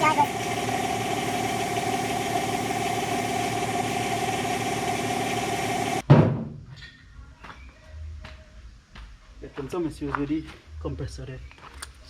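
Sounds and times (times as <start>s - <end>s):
air compressor motor running: 0.0s - 6.0s
short thump: 6.0s - 6.8s.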